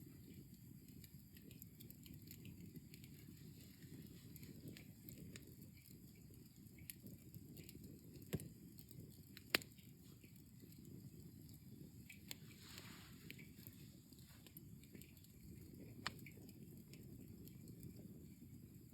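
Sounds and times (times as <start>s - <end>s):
fire crackling: 0.0s - 18.9s
low fire rumble: 0.0s - 18.9s
sharp pops of burning wood: 6.7s - 10.4s, 14.4s - 17.7s
soft hiss: 9.5s - 16.2s.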